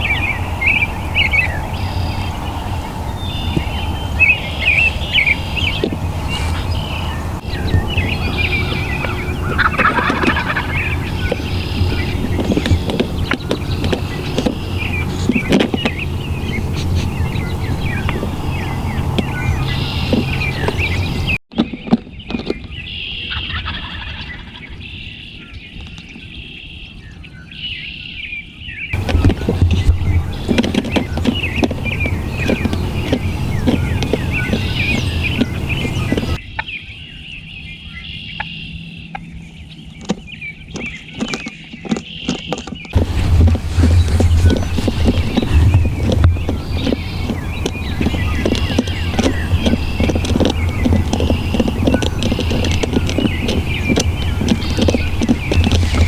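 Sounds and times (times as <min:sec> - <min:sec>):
wild turkey gobbling: 0:00.0 - 0:21.3, 0:29.0 - 0:36.4
songbirds chirping: 0:00.0 - 0:21.4, 0:29.0 - 0:36.4, 0:39.5 - 0:56.0
steady low rumble: 0:00.0 - 0:21.4, 0:29.0 - 0:36.4, 0:43.0 - 0:56.0.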